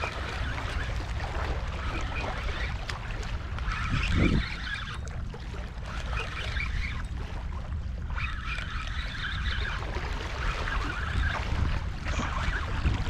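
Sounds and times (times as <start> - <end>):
wind buffeting microphone: 0.0 - 5.9, 9.0 - 13.0.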